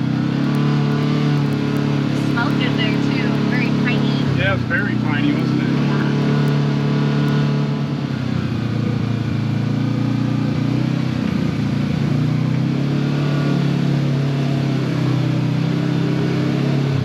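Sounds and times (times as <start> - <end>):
utility vehicle engine running: 0.0 - 17.0.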